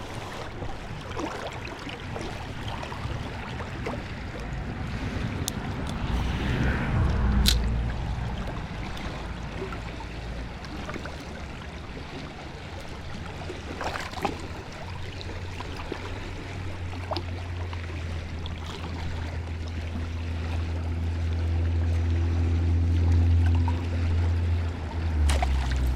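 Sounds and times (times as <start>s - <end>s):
river water running: 0.0s - 25.9s
wind on microphone: 2.3s - 10.6s.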